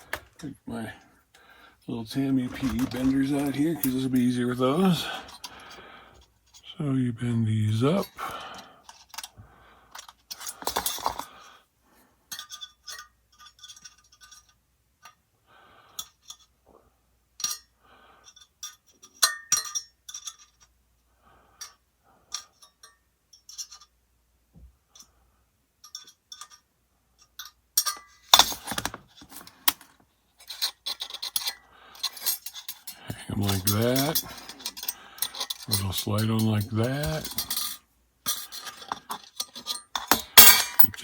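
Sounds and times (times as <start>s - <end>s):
small metal clinks and clicks: 8.0s - 9.3s, 9.9s - 11.4s, 12.3s - 15.2s, 17.4s - 20.8s, 21.6s - 24.0s, 25.8s - 41.0s
handling noise on tabletop: 27.8s - 41.0s.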